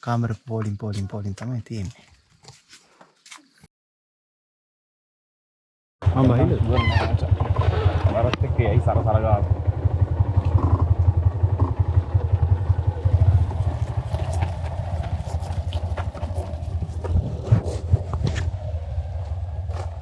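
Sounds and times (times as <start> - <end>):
motorcycle engine at low revs: 6.0 - 20.0.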